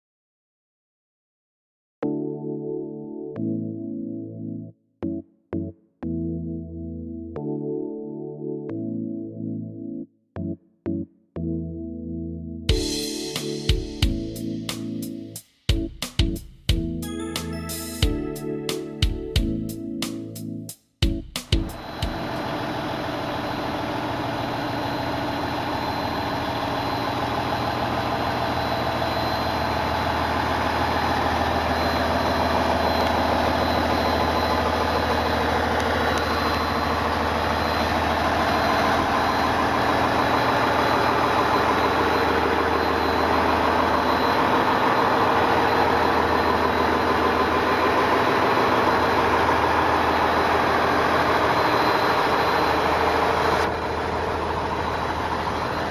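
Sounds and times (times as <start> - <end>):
diesel train engine idling: 21.8 - 55.9
thin high whine: 21.8 - 55.9.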